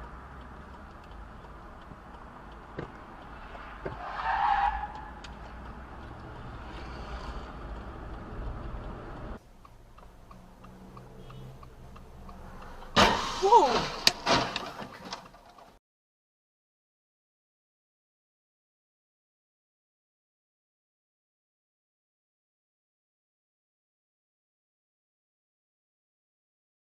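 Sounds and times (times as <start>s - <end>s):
faint regular ticking: 0.0s - 3.8s, 5.0s - 12.8s
car road and engine noise: 0.0s - 15.8s.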